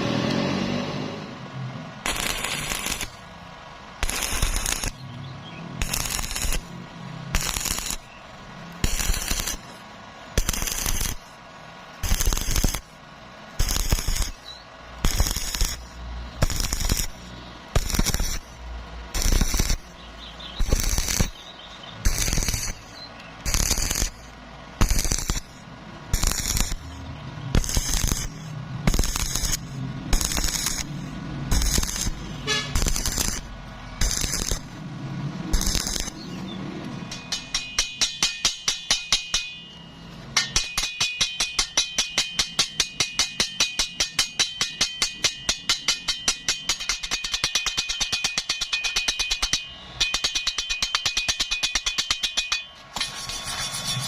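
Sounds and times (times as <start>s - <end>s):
welding arc crackling: 1.9s - 36.6s.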